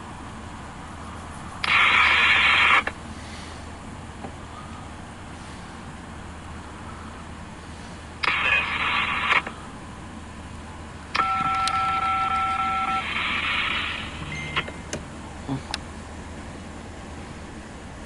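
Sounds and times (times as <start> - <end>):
low steady hum: 0.0 - 18.0
radio hiss bursts: 1.6 - 3.0, 8.2 - 9.6, 11.2 - 14.2
two-tone touch-tone signal: 11.2 - 13.0.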